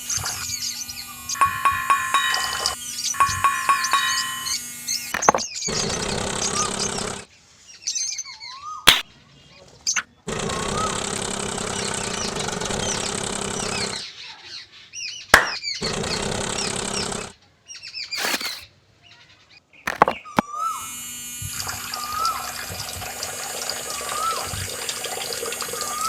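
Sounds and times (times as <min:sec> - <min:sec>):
small water pump motor humming: 0:00.0 - 0:07.2, 0:10.3 - 0:14.0, 0:15.4 - 0:17.3, 0:18.2 - 0:18.6, 0:19.9 - 0:26.0
birds chirping: 0:19.6 - 0:20.8
water running: 0:21.6 - 0:26.0.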